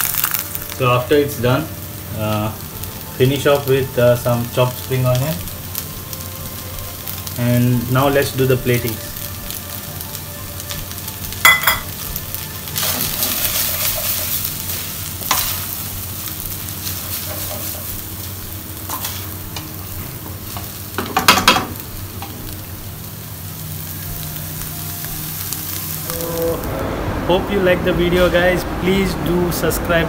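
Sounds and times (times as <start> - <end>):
egg sizzling in oil: 0.0 - 26.4.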